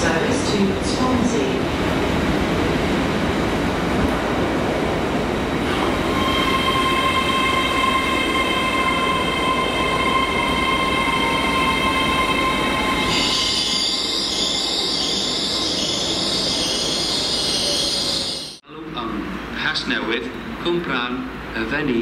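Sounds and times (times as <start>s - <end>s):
train running past: 0.0s - 21.9s
high-pitched multi-tone squeal: 5.7s - 18.6s.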